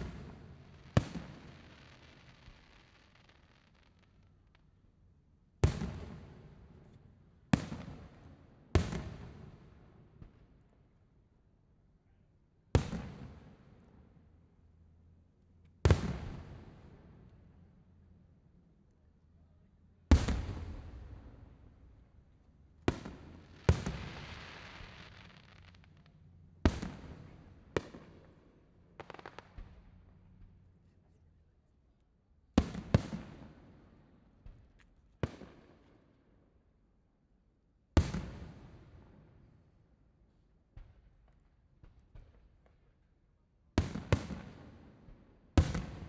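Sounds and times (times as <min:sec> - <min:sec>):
fireworks bursting with booms: 0:00.0 - 0:04.6, 0:05.6 - 0:06.7, 0:07.5 - 0:08.2, 0:08.8 - 0:10.4, 0:12.8 - 0:13.8, 0:15.8 - 0:17.1, 0:20.1 - 0:22.0, 0:22.8 - 0:30.3, 0:32.6 - 0:35.8, 0:38.0 - 0:39.3, 0:43.8 - 0:46.0
fireworks crackles: 0:00.0 - 0:04.7, 0:23.0 - 0:27.3, 0:29.0 - 0:30.0.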